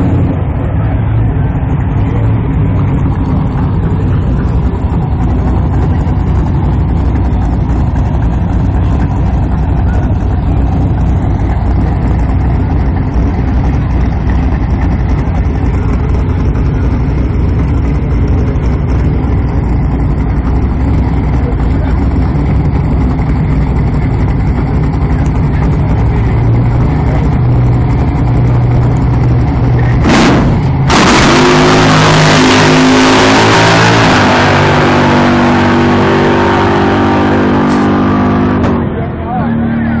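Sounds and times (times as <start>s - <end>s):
car engine rumbling: 0.0s - 40.0s.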